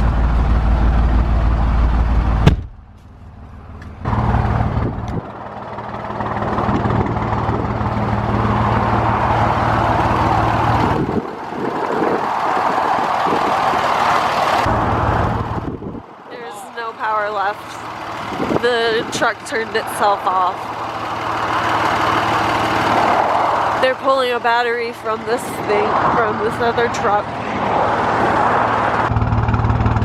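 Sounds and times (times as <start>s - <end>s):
low engine hum: 0.0s - 30.0s
passing traffic rushing: 0.0s - 30.0s.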